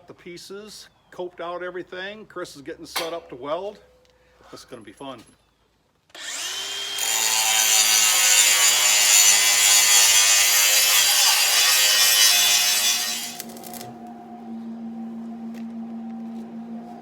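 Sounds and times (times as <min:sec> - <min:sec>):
angle grinder grinding steel: 0:06.2 - 0:14.0.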